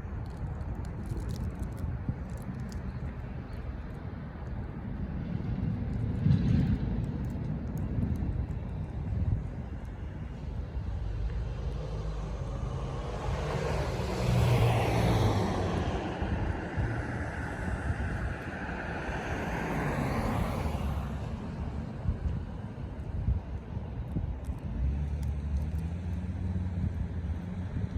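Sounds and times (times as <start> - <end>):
low rumble of wind or traffic: 0.0 - 27.9
aircraft passing overhead: 10.3 - 21.8.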